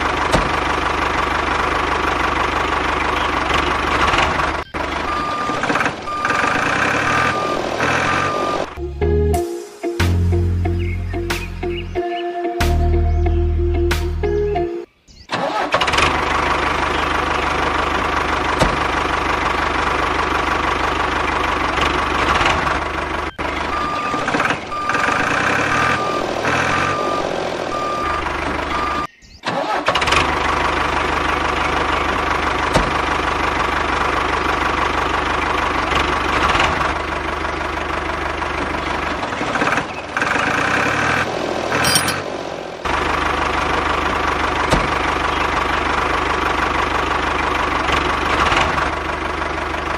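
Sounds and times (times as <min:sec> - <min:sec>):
tractor engine idling: 0:00.0 - 0:08.8, 0:15.4 - 0:49.9
short beeps: 0:05.1 - 0:08.8, 0:23.7 - 0:29.1, 0:41.8 - 0:42.2.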